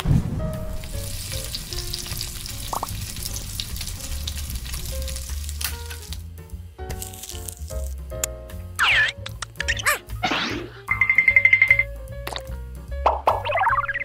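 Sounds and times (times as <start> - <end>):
chicken deep-frying in oil: 0.0 - 8.1
background music with bass line: 0.0 - 14.0.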